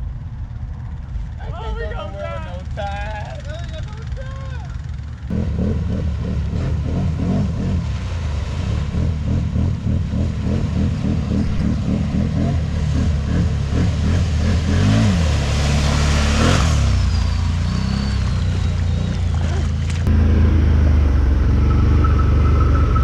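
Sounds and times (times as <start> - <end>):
engine revving: 4.8 - 23.0.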